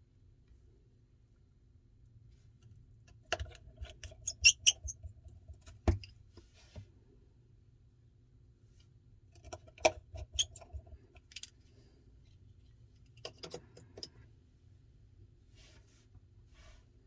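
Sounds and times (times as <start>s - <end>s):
clicks and clinking of small tools: 13.0s - 14.2s.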